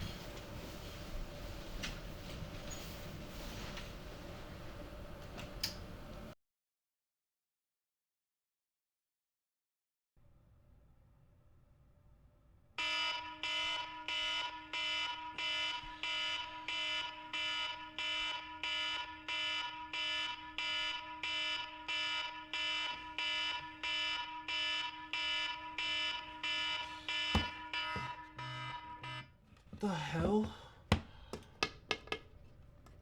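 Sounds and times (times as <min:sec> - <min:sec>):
electronic alarm beeping: 0:12.8 - 0:29.3.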